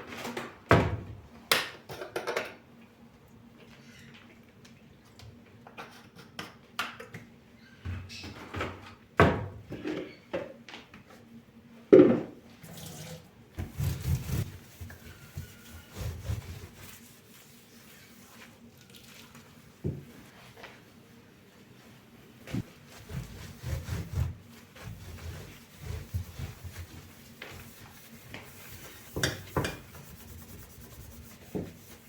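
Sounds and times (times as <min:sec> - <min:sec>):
dishes knocking and clattering: 0:29.1 - 0:29.9.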